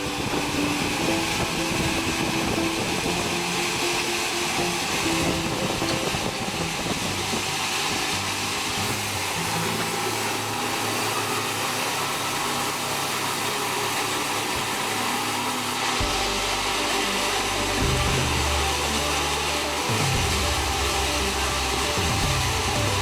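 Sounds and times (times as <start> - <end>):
sawmill saw whirring: 0.0 - 23.0.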